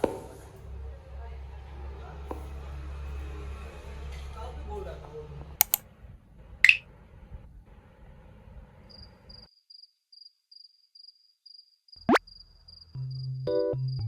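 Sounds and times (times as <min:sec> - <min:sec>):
cricket chirping: 0:08.9 - 0:14.0.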